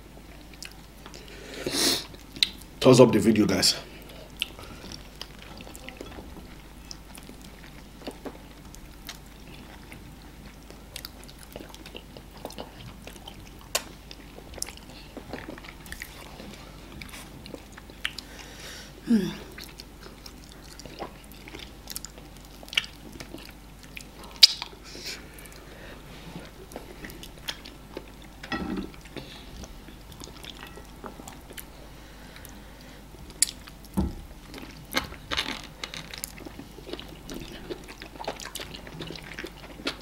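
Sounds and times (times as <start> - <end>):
chewing and mouth smacks: 0.2 - 1.3, 2.1 - 2.7, 4.1 - 18.3, 19.5 - 25.7, 33.3 - 40.0.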